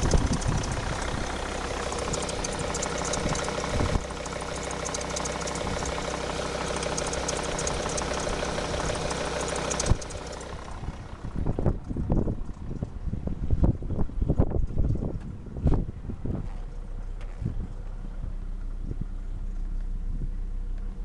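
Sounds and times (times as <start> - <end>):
fine even ticking: 0.0 - 11.2
diesel engine idling: 0.0 - 14.5, 15.9 - 21.0
wind gusts on microphone: 10.8 - 16.6.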